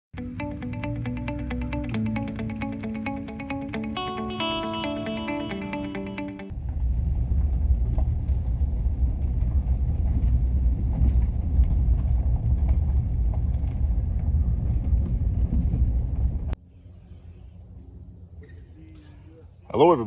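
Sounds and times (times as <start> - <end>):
steady low rumble: 6.5 - 16.6.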